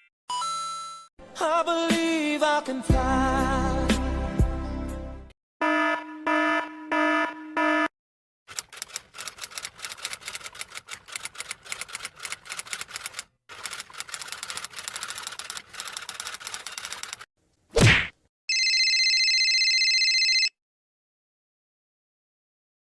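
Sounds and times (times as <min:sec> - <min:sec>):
rapid keyboard typing clicks: 0:08.5 - 0:17.3.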